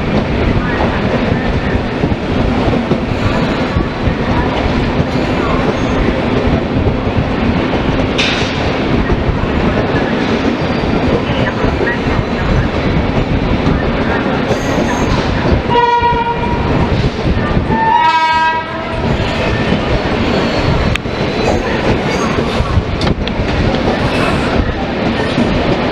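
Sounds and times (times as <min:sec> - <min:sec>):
train rumbling on rails: 0:00.0 - 0:25.9
train horn blasts: 0:15.7 - 0:16.6, 0:17.7 - 0:18.9.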